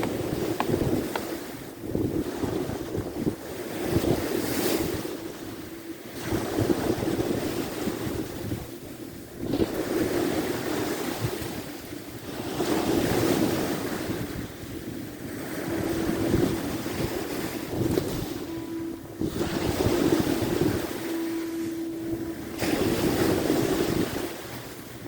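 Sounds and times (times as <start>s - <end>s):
waves breaking on shore: 0.0s - 25.0s
wind buffeting microphone: 0.0s - 25.0s.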